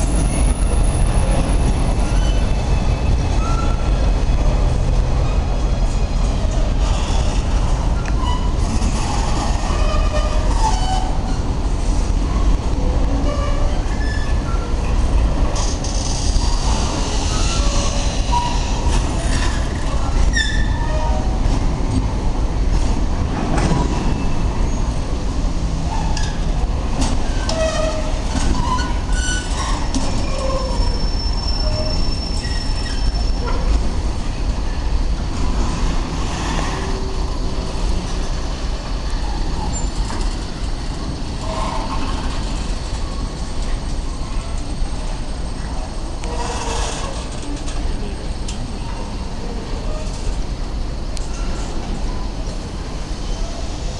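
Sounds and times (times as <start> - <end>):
rumble of rolling wagons: 0.0 - 53.9
long high wheel squeal: 13.2 - 14.7, 15.9 - 18.8, 27.3 - 33.6, 46.2 - 47.3
wheel squeals and clicks: 27.3 - 33.6.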